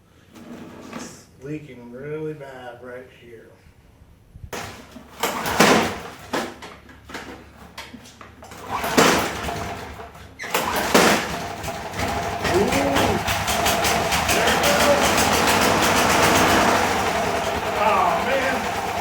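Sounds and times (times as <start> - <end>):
lawn mower engine running: 8.4 - 19.0
recoil starter cord pulled: 8.4 - 19.0.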